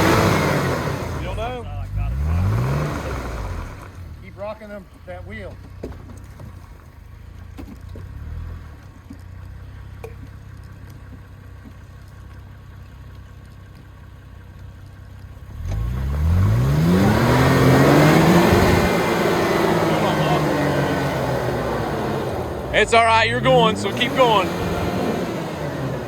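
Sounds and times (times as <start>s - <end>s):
off-road vehicle engine revving: 0.0s - 6.4s, 7.0s - 10.7s, 15.3s - 26.0s.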